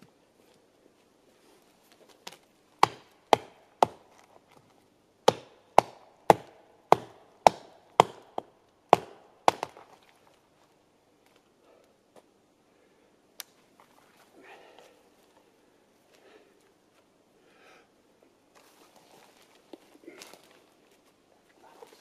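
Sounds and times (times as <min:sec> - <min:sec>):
axe chopping wood: 0:02.8 - 0:04.1, 0:05.2 - 0:09.9.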